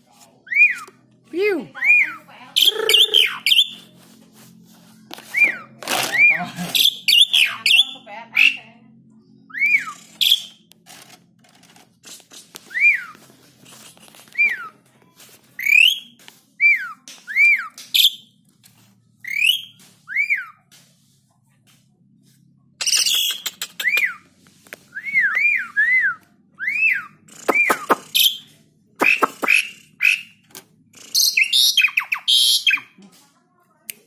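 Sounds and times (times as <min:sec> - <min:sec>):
starling whistled song: 0:00.5 - 0:00.9, 0:05.3 - 0:08.6, 0:09.5 - 0:10.6, 0:12.7 - 0:13.2, 0:14.3 - 0:14.7, 0:15.6 - 0:18.3, 0:19.2 - 0:20.6, 0:24.9 - 0:30.4, 0:31.0 - 0:32.9
high bird chatter: 0:01.8 - 0:10.7, 0:12.0 - 0:18.4, 0:22.8 - 0:24.3, 0:26.6 - 0:33.0.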